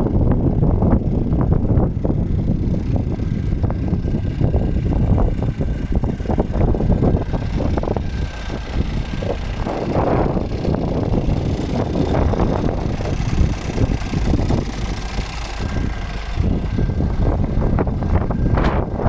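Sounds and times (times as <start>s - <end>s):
truck diesel engine idling: 0.0s - 19.0s
wind buffeting microphone: 0.0s - 19.0s.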